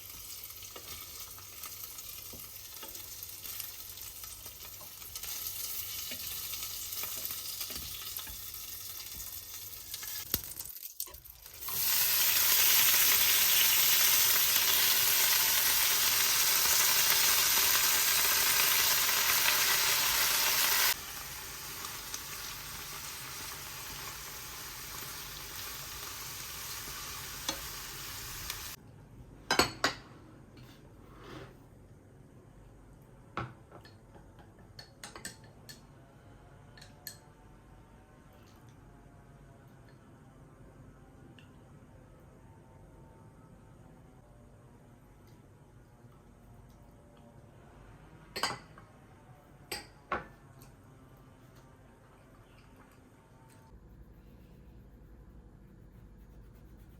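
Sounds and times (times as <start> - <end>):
steady hiss: 11.7 - 28.8.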